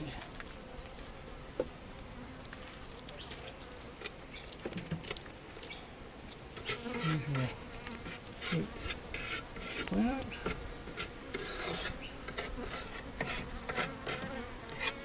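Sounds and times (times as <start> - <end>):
bees buzzing: 0.0 - 15.0
hive tool scraping wood: 6.4 - 15.0.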